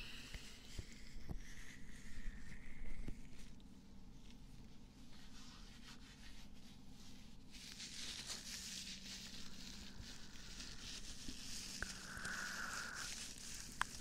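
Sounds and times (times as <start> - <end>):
crackly rustle: 0.6 - 14.0
scratching and rubbing near microphone: 4.2 - 14.0.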